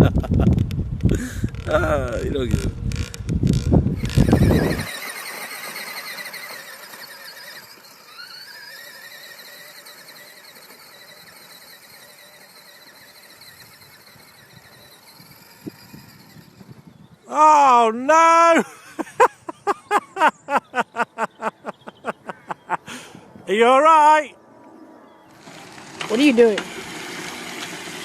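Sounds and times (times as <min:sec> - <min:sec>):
dirt bike engine revving: 0:01.0 - 0:17.2, 0:25.3 - 0:28.0.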